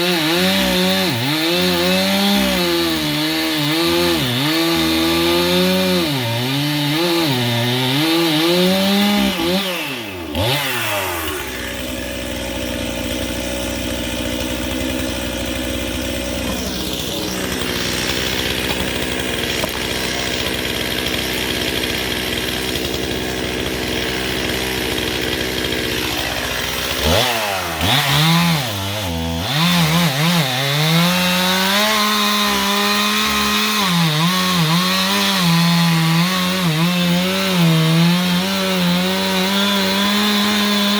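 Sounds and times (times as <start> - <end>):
chainsaw cutting wood: 0.0 - 40.9
chainsaw idling: 0.0 - 40.9.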